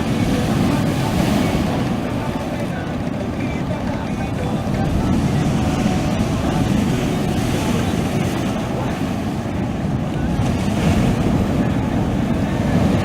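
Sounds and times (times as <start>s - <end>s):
sea waves washing on shore: 0.0s - 13.0s
wind buffeting microphone: 0.0s - 13.0s.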